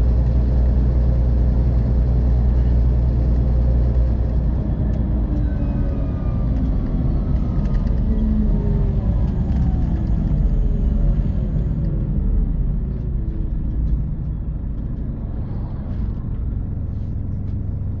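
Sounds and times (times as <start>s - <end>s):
bus diesel engine slowing: 0.0s - 18.0s.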